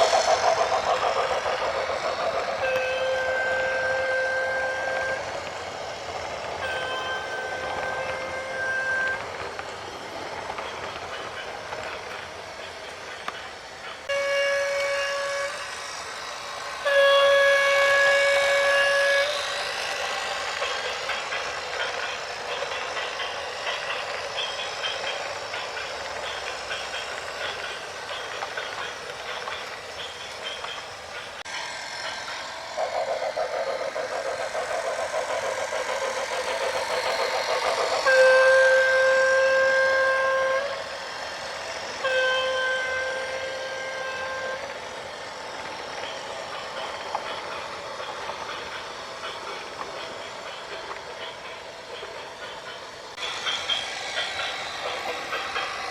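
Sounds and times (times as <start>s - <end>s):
horn blasts: 2.6s - 5.3s, 6.6s - 9.2s, 14.1s - 15.8s, 16.8s - 19.6s, 38.0s - 40.8s, 42.0s - 44.7s.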